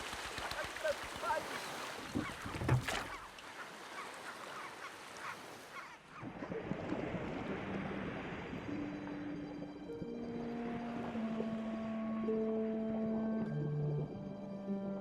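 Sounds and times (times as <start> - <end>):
surf-like noise: 0.0 - 2.2, 3.6 - 12.4
held music notes: 8.7 - 15.0.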